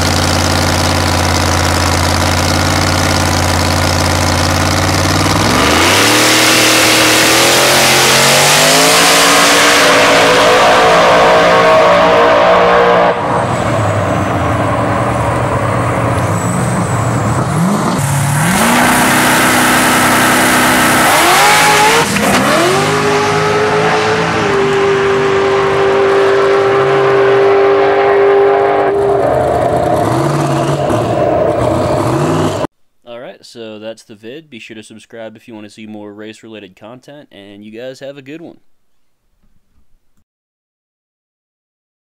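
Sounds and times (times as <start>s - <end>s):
drag race car engine at full throttle: 0.0s - 32.7s.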